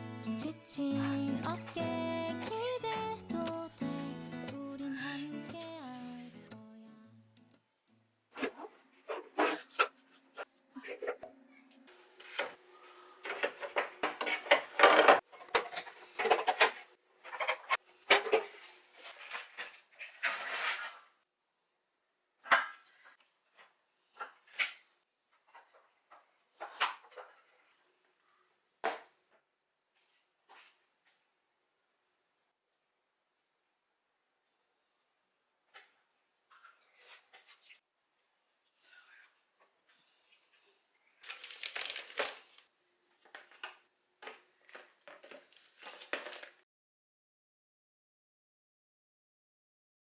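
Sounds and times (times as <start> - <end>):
packaging crinkling: 41.2 - 42.6.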